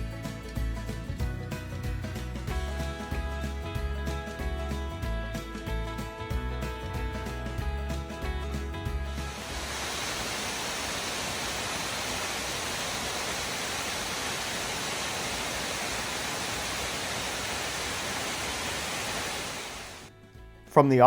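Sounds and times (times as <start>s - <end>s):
waterfall rushing: 9.2s - 20.1s.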